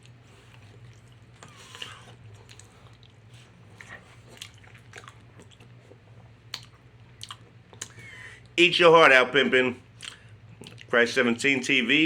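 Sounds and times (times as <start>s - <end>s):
person chewing food: 0.0s - 8.6s, 9.9s - 10.9s
steady low hum: 0.0s - 12.0s.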